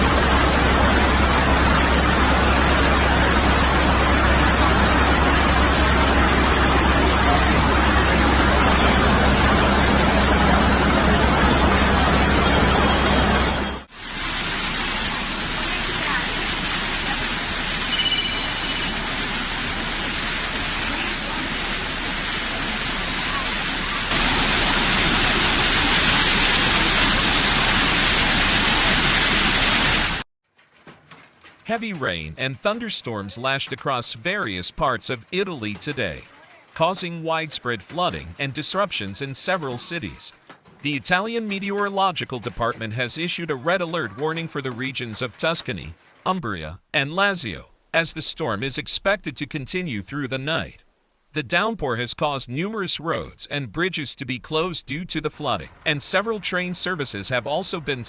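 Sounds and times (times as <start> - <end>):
water rushing: 0.0 - 30.2, 31.8 - 50.7, 51.4 - 58.0
heavy rain pouring: 0.0 - 30.3.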